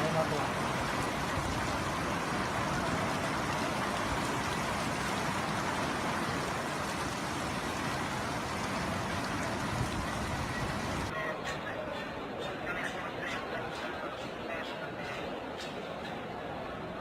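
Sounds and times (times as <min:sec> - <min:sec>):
heavy rain pouring: 0:00.0 - 0:11.1.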